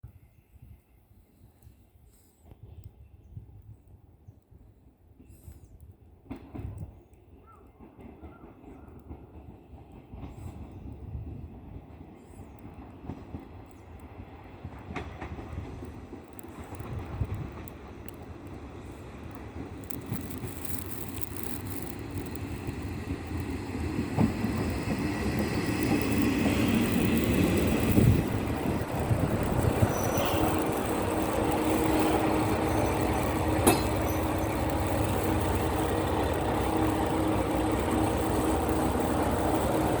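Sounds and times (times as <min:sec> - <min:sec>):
railcar diesel engine: 0:00.0 - 0:40.0
wheels clanking on rails: 0:14.6 - 0:40.0.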